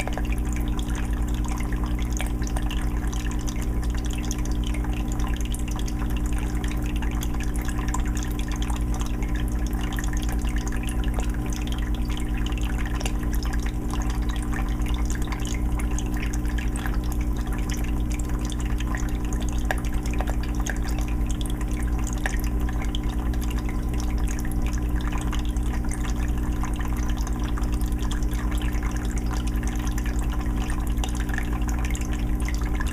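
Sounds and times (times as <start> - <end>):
water trickling and dripping: 0.0 - 32.9
low hum: 24.5 - 32.9.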